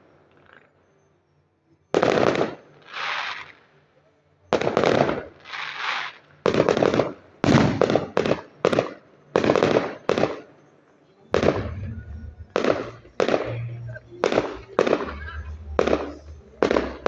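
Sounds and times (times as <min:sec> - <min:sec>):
soft hissing: 0:02.7 - 0:03.8, 0:05.2 - 0:06.5
firework shells bursting: 0:04.6 - 0:10.5.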